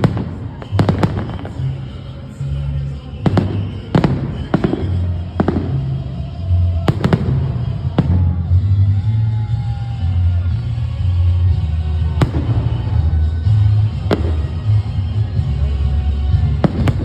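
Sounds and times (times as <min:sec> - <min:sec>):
firework bangs: 0:00.0 - 0:02.4, 0:03.1 - 0:08.6, 0:12.0 - 0:15.5, 0:16.3 - 0:17.0
music with low bass line: 0:00.0 - 0:17.0.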